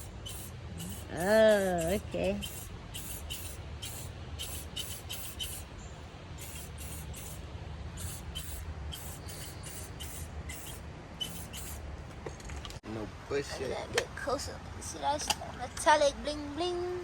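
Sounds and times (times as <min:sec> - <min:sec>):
spray paint can hissing: 0:00.0 - 0:05.7, 0:06.4 - 0:07.4, 0:08.0 - 0:11.8
steady low rumble: 0:00.0 - 0:13.3.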